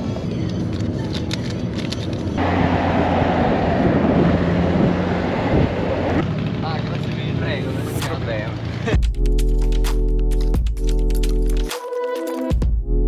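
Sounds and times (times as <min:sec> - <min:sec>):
rush of wind and road noise: 0:00.0 - 0:09.0
vehicle engine and road hum: 0:00.0 - 0:11.7.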